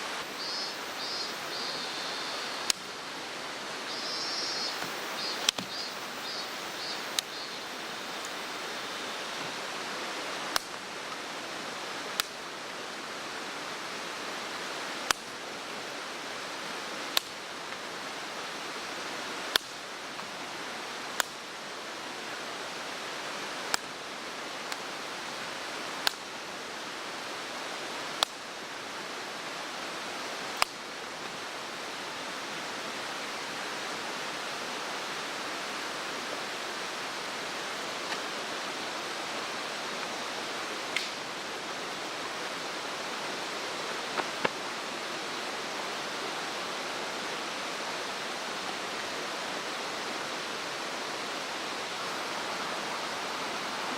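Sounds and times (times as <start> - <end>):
mountain stream rushing: 0.0 - 53.9
faint high chirps: 0.2 - 2.9, 3.8 - 9.4.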